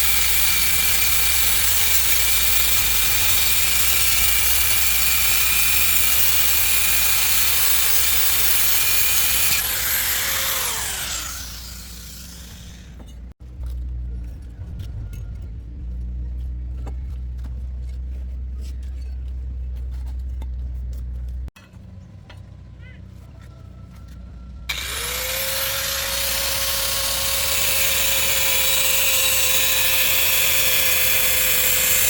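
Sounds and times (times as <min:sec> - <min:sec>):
high-speed power tool whine: 0:00.0 - 0:13.0, 0:24.7 - 0:32.0.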